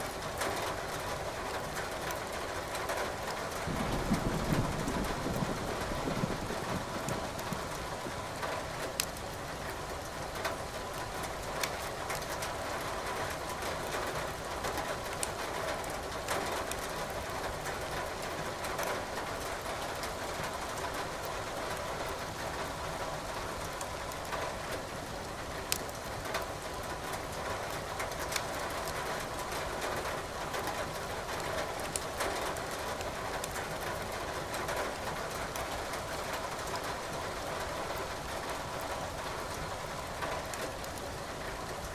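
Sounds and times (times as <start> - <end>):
firewood crackling and popping: 8.8 - 12.6, 15.1 - 15.4, 25.6 - 26.6, 27.9 - 29.4, 31.3 - 32.3.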